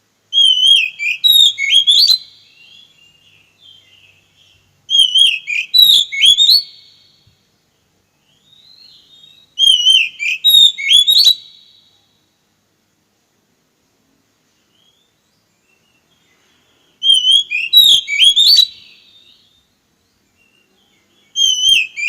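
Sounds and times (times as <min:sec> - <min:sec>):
bird singing warbled whistles: 0:00.3 - 0:07.2, 0:08.2 - 0:12.0, 0:14.6 - 0:19.7, 0:20.3 - 0:22.0.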